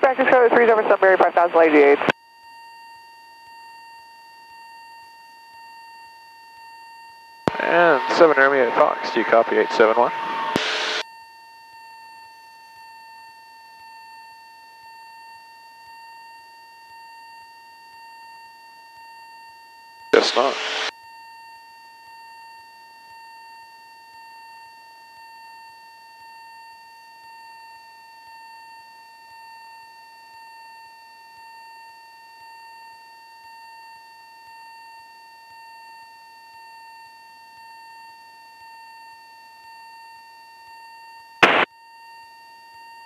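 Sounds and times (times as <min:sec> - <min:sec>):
high-pitched electronic whine: 0:07.5 - 0:11.0, 0:20.2 - 0:20.9, 0:41.4 - 0:41.7.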